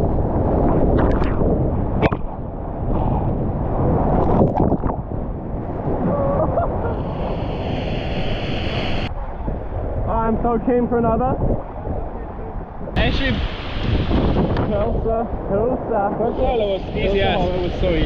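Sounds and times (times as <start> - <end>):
wind buffeting microphone: 0.0 - 18.0
whitewater rushing: 13.0 - 15.1.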